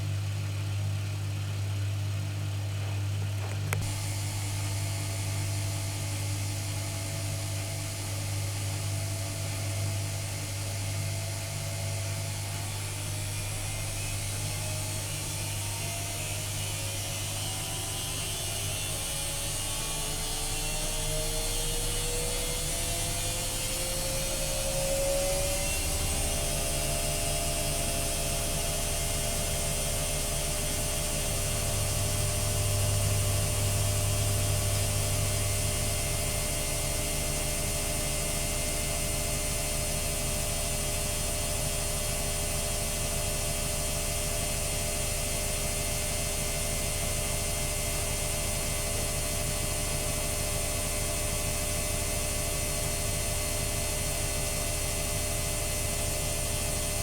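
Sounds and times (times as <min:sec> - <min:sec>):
washing machine spinning: 0:00.0 - 0:57.0.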